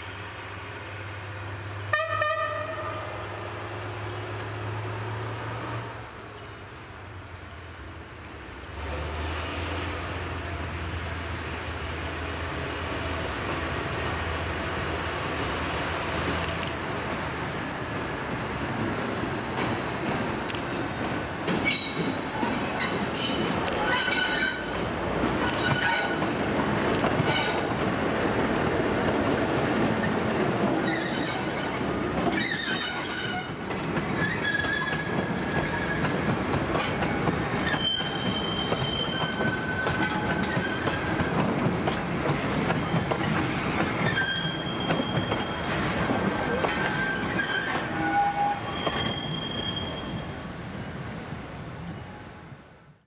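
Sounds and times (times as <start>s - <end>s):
train wheels clacking over rail joints: 28.6s - 49.2s
high-pitched wheel squeals: 37.6s - 41.1s, 43.5s - 46.0s, 46.7s - 50.4s.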